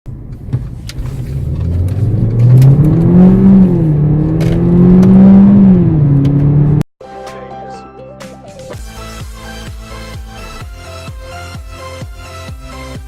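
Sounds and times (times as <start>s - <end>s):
car engine revving hard: 1.2s - 6.8s.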